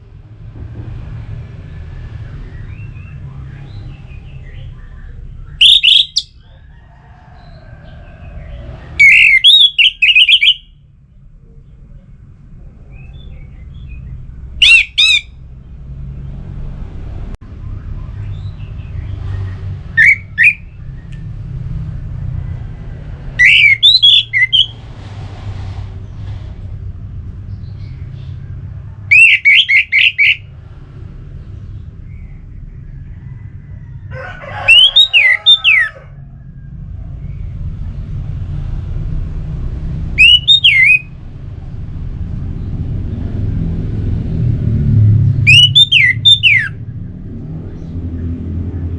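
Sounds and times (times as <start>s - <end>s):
steady low rumble: 0.0s - 9.0s, 9.7s - 34.2s, 36.0s - 48.9s
thrush singing whistled notes: 2.2s - 6.4s, 8.4s - 10.8s, 12.9s - 15.4s, 17.8s - 21.3s, 23.3s - 24.8s, 29.1s - 30.5s, 34.7s - 35.9s, 40.1s - 41.2s, 45.4s - 46.8s.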